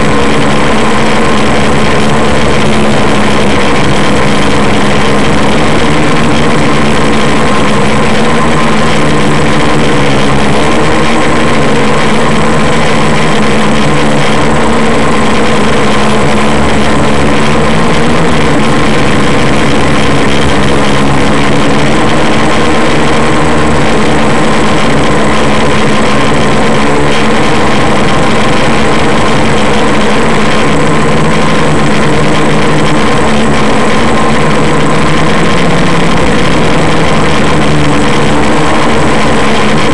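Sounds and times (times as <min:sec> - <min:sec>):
quadcopter propellers whirring: 0:00.0 - 0:39.9.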